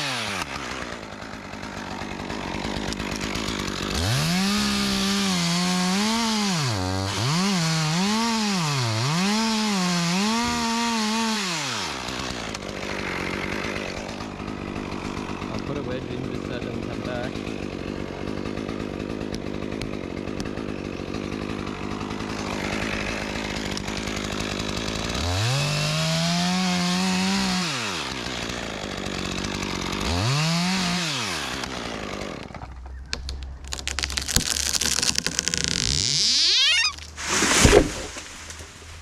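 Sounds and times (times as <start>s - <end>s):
wood cracking and snapping: 0.0s - 7.4s, 19.0s - 25.4s, 31.4s - 39.0s
chainsaw revving and cutting: 0.0s - 32.9s, 33.6s - 39.0s.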